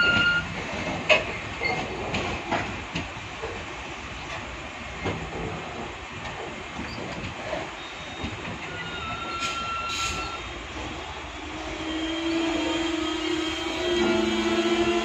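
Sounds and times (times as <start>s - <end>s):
train wheels rumbling and knocking: 0.0s - 15.0s
thin wheel squeal: 7.8s - 10.5s.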